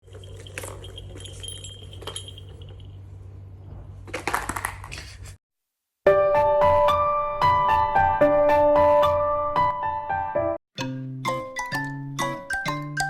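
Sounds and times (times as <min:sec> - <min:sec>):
small bell ringing: 0:00.0 - 0:03.1
piano background music: 0:06.1 - 0:13.0.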